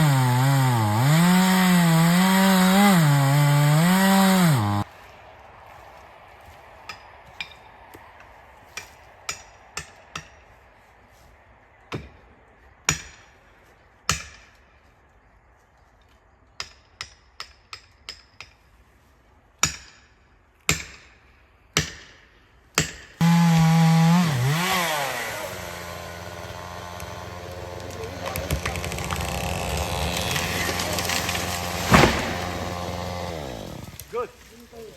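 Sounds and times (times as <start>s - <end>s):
chainsaw revving: 0.0s - 4.9s, 23.2s - 34.2s.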